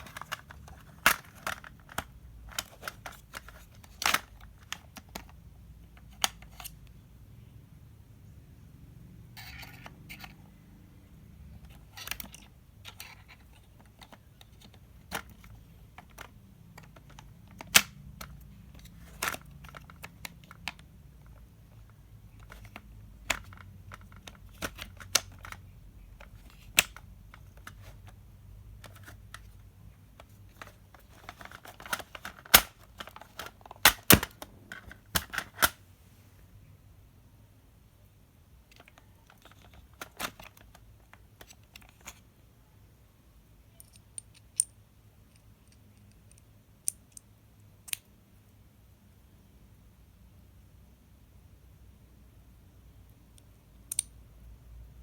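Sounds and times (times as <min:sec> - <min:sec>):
packaging rustling: 0:30.5 - 0:35.8.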